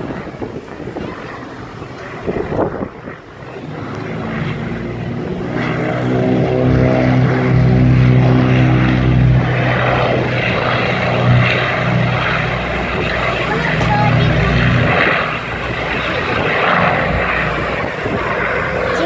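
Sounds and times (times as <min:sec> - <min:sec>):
broad rushing noise: 0:00.0 - 0:19.0
propeller engine droning: 0:00.0 - 0:19.0.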